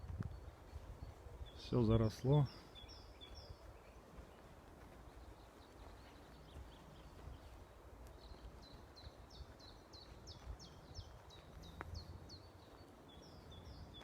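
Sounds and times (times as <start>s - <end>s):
low wind rumble: 0.0s - 14.0s.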